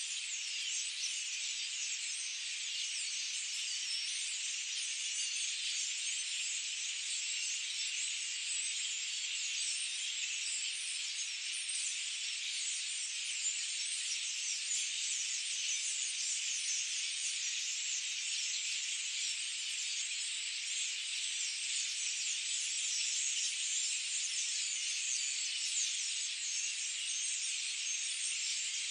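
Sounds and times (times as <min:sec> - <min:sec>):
small birds chirping: 0:00.0 - 0:28.9.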